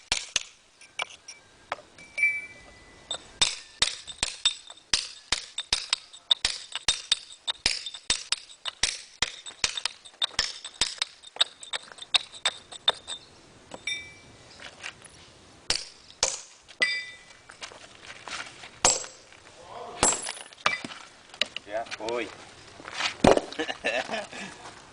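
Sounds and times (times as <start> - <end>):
hammer striking chisel on stone: 3.4 - 13.2.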